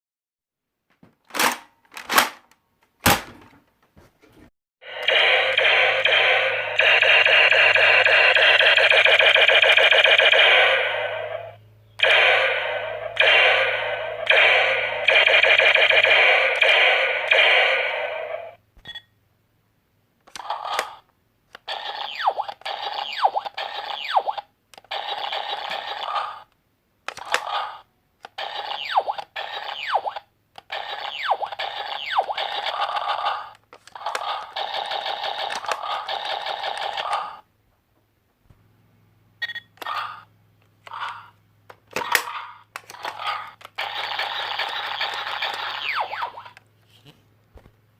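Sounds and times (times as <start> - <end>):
toy gun electronic zaps: 4.9 - 18.6, 21.6 - 26.4, 27.2 - 37.4, 42.0 - 46.6.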